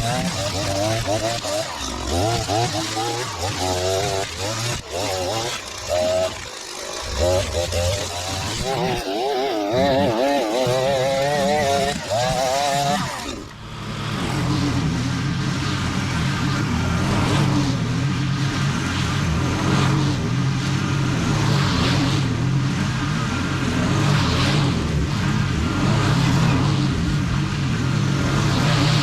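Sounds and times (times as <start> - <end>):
small petrol engine running: 0.0 - 14.9.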